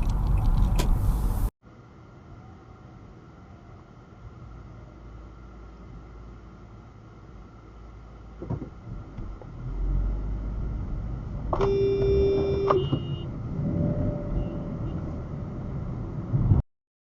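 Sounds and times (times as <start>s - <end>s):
car rumbling on road: 0.0s - 1.5s, 7.4s - 16.6s
car horn honking: 11.6s - 13.3s.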